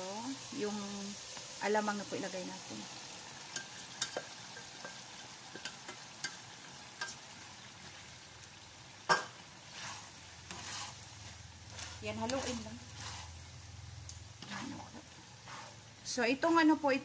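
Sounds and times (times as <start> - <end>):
shrimp sizzling in hot oil: 0.0 - 17.0
spatula clicking on pan: 3.5 - 6.4, 7.0 - 7.2.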